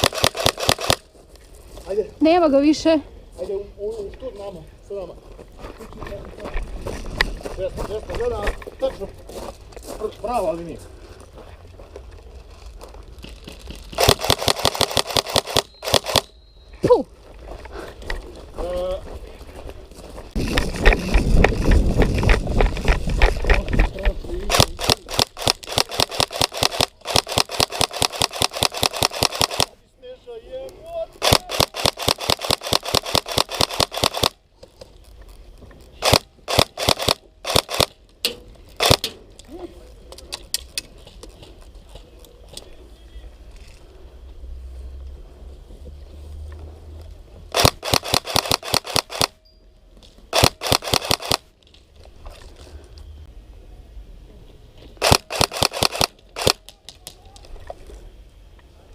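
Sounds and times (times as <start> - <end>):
airsoft gun firing rapid shots: 0.0 - 1.0, 14.0 - 16.3, 24.5 - 29.7, 31.2 - 34.4, 36.0 - 37.9, 38.8 - 39.1, 47.5 - 49.4, 50.3 - 51.5, 55.0 - 56.6.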